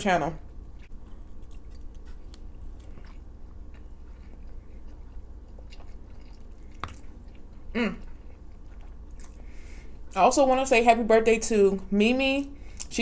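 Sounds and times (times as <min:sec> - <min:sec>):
person chewing food: 0:00.5 - 0:10.1.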